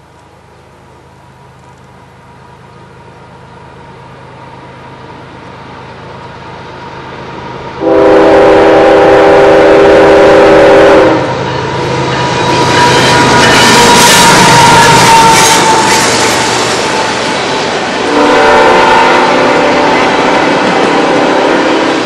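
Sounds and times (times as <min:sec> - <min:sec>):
diesel locomotive and wheel noise: 0:00.0 - 0:22.0
rumble of passing freight cars: 0:00.0 - 0:22.0
locomotive horn blast: 0:07.8 - 0:11.3, 0:12.6 - 0:16.2, 0:18.0 - 0:22.0.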